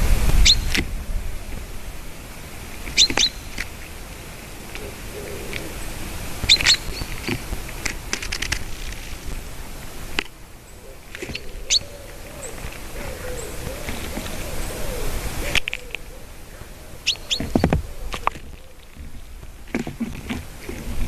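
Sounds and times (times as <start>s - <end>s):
low wavering call: 0.0s - 8.2s
outdoor hiss: 0.0s - 21.0s
small birds chirping: 0.0s - 21.0s.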